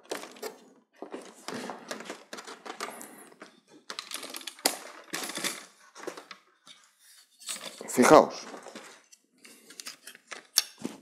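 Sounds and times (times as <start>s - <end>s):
small hard clicks and rattles: 0.0s - 7.9s.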